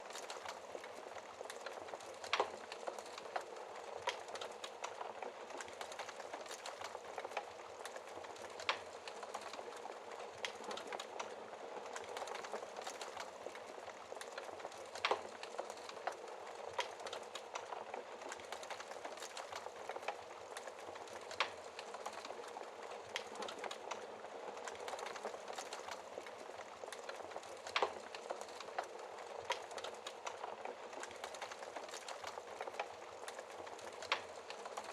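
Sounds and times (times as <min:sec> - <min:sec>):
fire crackling and popping: 0:00.0 - 0:34.9.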